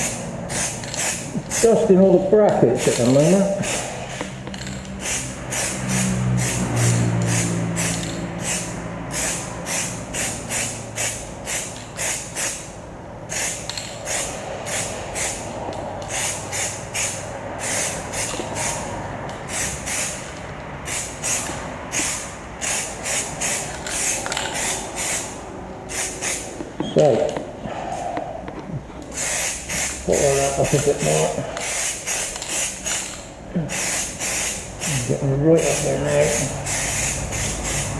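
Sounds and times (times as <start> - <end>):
aerosol spray can hissing: 20.9 - 26.5, 29.1 - 33.0, 33.7 - 35.0, 35.7 - 37.9.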